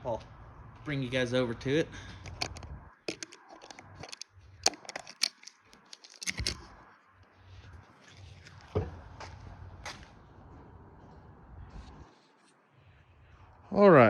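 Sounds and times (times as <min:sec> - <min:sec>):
sharp clicks and light knocks: 0:02.1 - 0:06.8.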